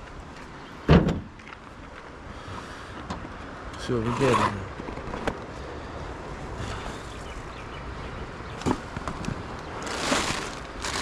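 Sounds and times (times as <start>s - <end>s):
rustling: 8.6s - 11.0s.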